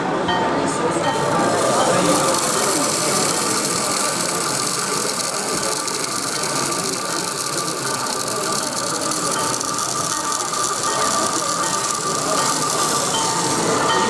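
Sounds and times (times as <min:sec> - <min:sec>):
model locomotive motor whirring: 0:01.1 - 0:14.0
fine rapid clicking: 0:01.2 - 0:14.0.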